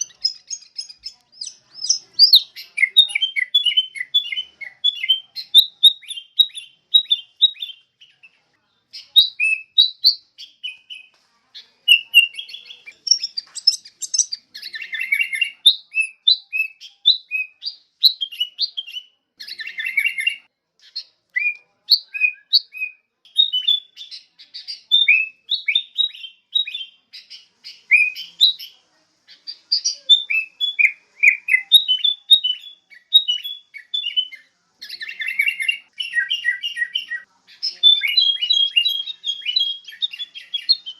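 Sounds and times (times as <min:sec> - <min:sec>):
bulbuls chirping and whistling: 0:00.0 - 0:08.3, 0:09.0 - 0:40.9.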